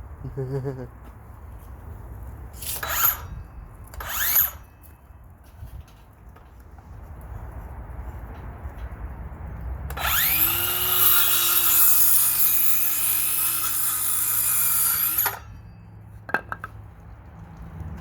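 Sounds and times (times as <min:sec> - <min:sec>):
power saw cutting: 0:02.6 - 0:03.3, 0:04.0 - 0:04.7, 0:09.9 - 0:15.6.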